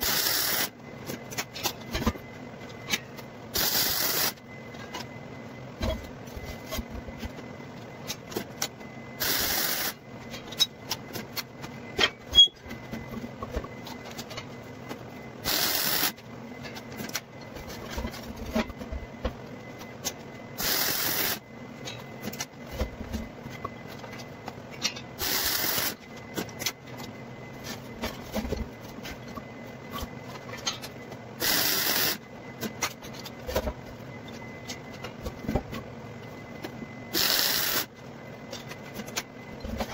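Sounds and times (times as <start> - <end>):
electric welder hissing: 0.0 - 0.7, 3.6 - 4.4, 9.2 - 10.0, 15.4 - 16.2, 20.6 - 21.4, 25.2 - 26.0, 31.4 - 32.2, 37.1 - 37.9.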